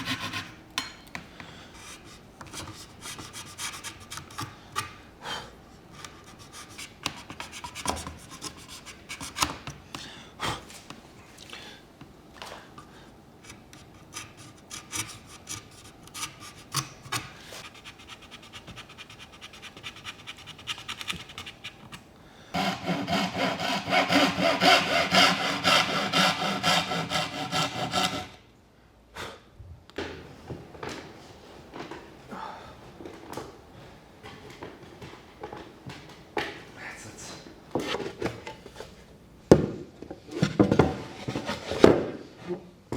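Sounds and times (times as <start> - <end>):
hand saw cutting wood: 0.0 - 0.6, 1.8 - 5.1, 6.0 - 9.6, 13.5 - 21.8, 22.5 - 28.4.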